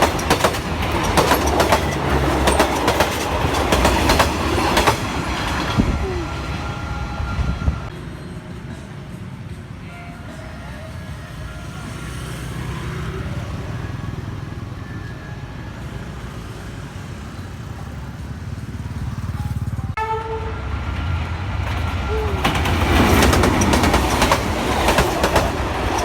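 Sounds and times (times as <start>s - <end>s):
freight train rumbling: 0.0s - 11.8s, 12.9s - 26.0s
locomotive horn blast: 5.8s - 7.9s, 20.0s - 20.9s.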